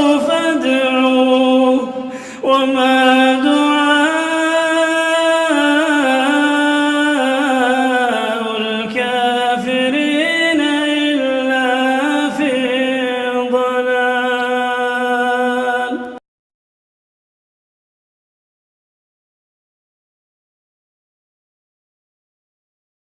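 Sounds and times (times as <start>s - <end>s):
man chanting melodically: 0.0s - 16.2s.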